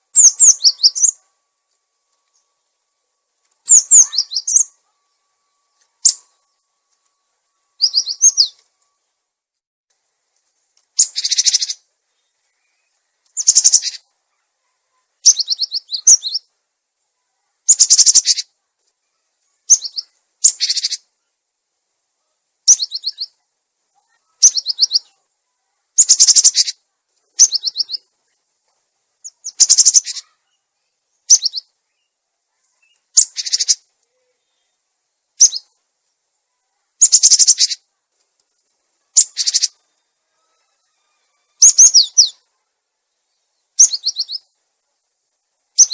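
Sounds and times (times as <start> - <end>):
bird chattering calls: 0.1 - 1.2, 3.7 - 4.8, 11.0 - 11.8, 13.4 - 14.1, 17.7 - 18.5, 19.7 - 21.1, 24.1 - 25.2, 26.0 - 26.8, 27.4 - 28.1, 29.2 - 30.5, 31.3 - 31.7, 33.1 - 33.9, 35.4 - 35.8, 37.0 - 37.8, 39.1 - 39.8, 41.6 - 42.4, 43.8 - 44.5.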